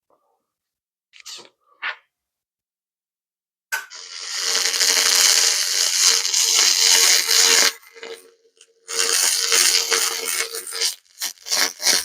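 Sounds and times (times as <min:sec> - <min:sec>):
cleaning laser hissing crackle: 0:04.0 - 0:08.3, 0:08.9 - 0:12.0.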